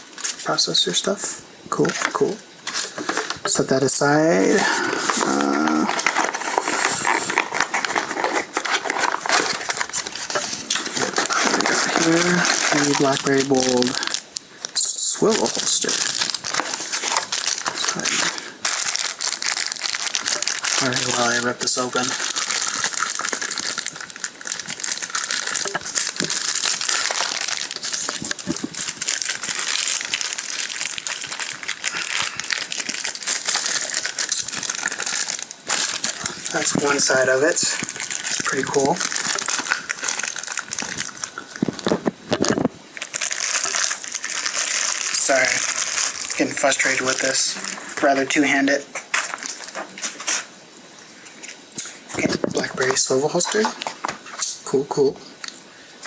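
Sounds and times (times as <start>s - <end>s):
packaging rustling and clicking: 4.8s - 48.2s, 49.0s - 50.5s.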